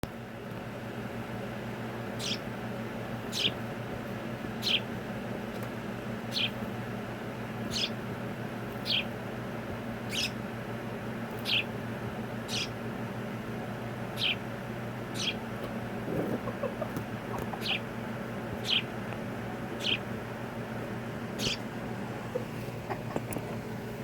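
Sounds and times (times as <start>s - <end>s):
pet bird chirping: 2.2s - 2.5s, 3.2s - 3.6s, 4.6s - 4.9s, 6.3s - 6.6s, 7.7s - 8.0s, 8.8s - 9.1s, 10.1s - 10.4s, 11.4s - 11.7s, 12.4s - 12.8s, 14.1s - 14.5s, 15.1s - 15.5s, 16.1s - 19.0s, 19.7s - 20.2s, 21.3s - 23.2s.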